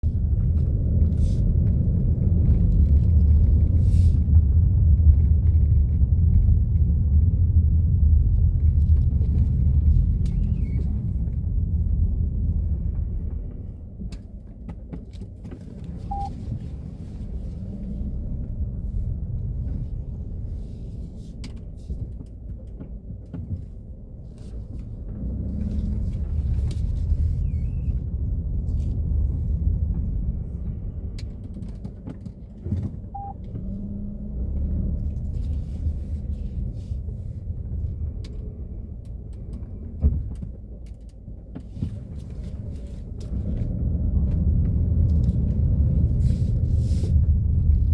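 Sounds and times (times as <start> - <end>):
car engine rumbling: 0.0 - 47.9
steering squeaks: 10.2 - 11.0, 27.0 - 28.0.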